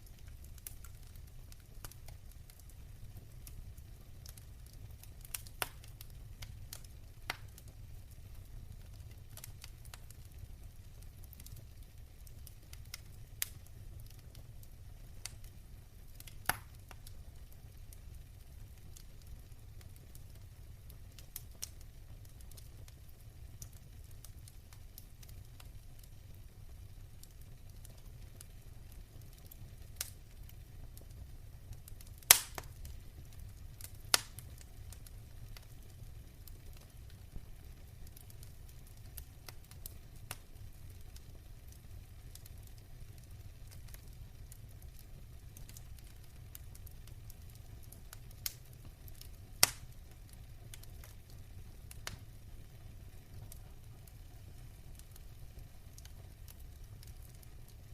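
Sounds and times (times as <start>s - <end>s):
sharp pops of fire: 0.0s - 2.7s, 3.4s - 14.4s, 15.2s - 17.6s, 28.4s - 31.1s, 31.8s - 52.3s
fireplace fire crackling: 0.0s - 57.9s.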